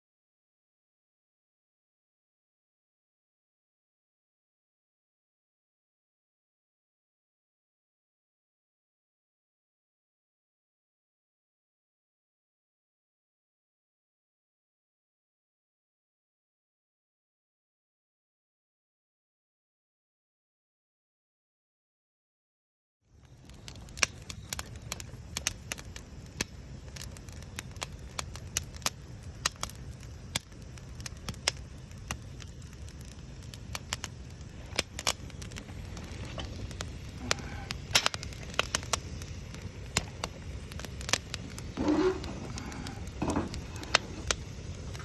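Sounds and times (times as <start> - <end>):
campfire crackling: 23.1 - 45.0
sharp pops and snaps: 23.5 - 45.0.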